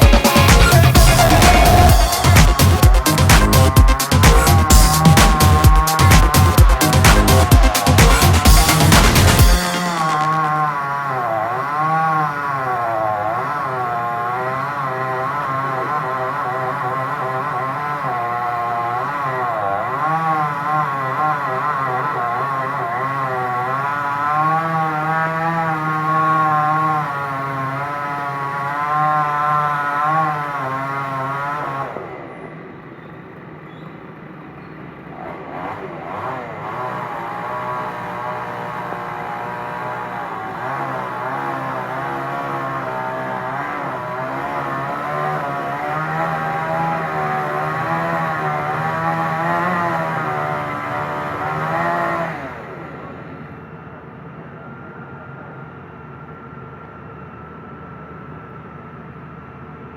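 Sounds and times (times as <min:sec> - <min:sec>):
excavator engine running: 0:00.0 - 0:13.3.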